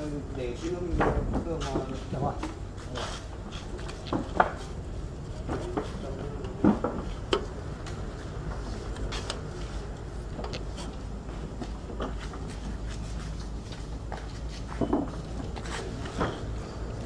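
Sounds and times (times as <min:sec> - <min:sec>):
hard objects knocking and clattering: 0:14.7 - 0:16.6.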